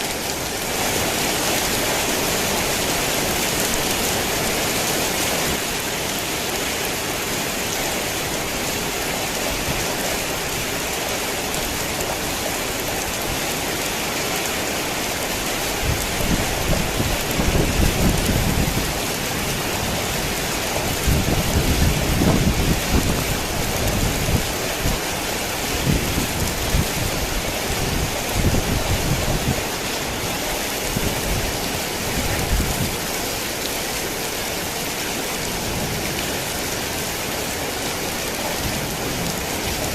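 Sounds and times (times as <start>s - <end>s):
heavy rain falling: 0.0s - 39.9s
rolling thunder: 15.9s - 19.1s, 20.9s - 24.5s.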